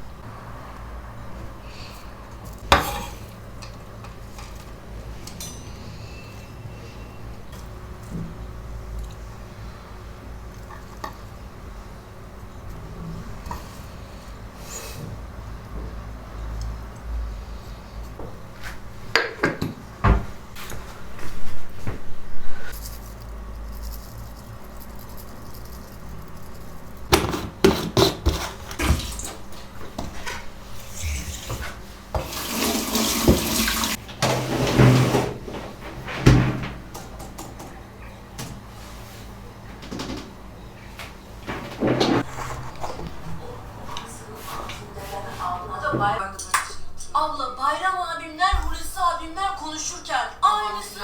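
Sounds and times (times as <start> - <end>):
kitchen knocks and clinks: 2.6 - 3.4
water running from sink tap: 32.2 - 34.0.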